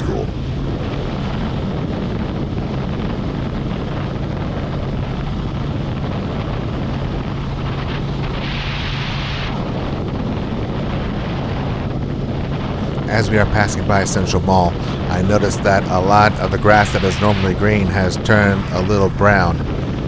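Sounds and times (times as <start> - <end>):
loud hiss: 12.4 - 20.0.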